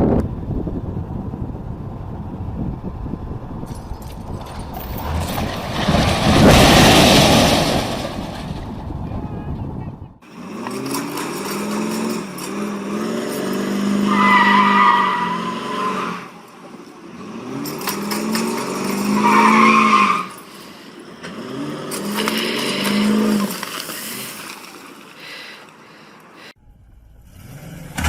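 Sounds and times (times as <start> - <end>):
car engine revving: 10.2 - 24.4.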